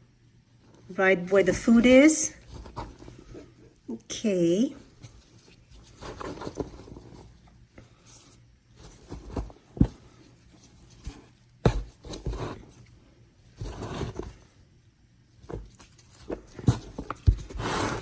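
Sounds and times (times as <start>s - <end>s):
rustling and scraping bedding: 4.8s - 14.7s.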